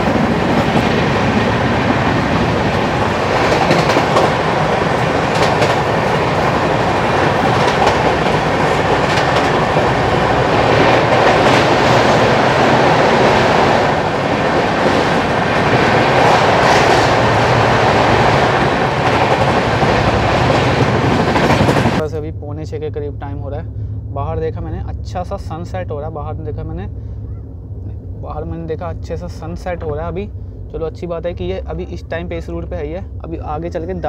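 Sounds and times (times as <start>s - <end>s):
train wheels rumbling on rail: 0.0s - 22.4s, 23.0s - 34.0s
clicks over rail joints: 3.4s - 4.4s, 5.3s - 5.9s.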